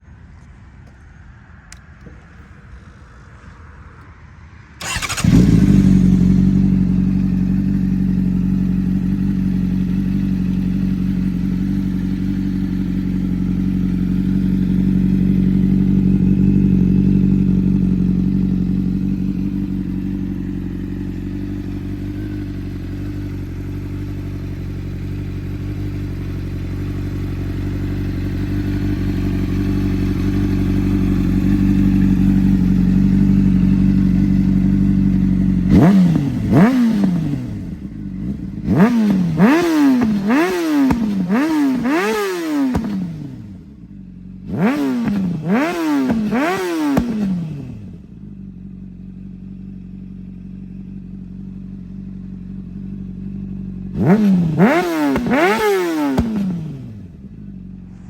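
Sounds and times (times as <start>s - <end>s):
motorcycle engine starting and idling: 0.3s - 58.0s.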